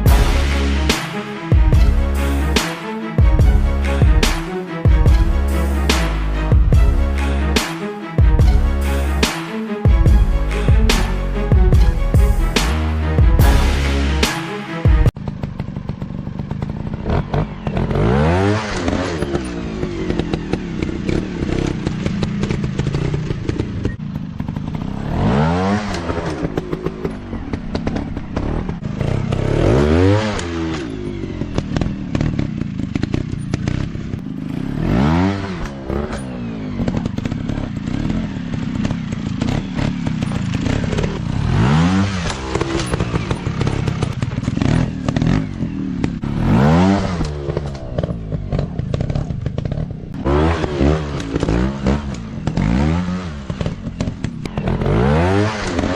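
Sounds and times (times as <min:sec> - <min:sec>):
dirt bike engine revving: 0:15.0 - 0:55.9.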